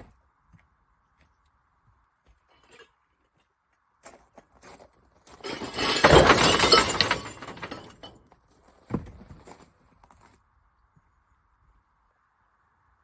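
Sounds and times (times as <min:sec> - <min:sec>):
rubbish crashing into a skip: 0:05.4 - 0:08.2.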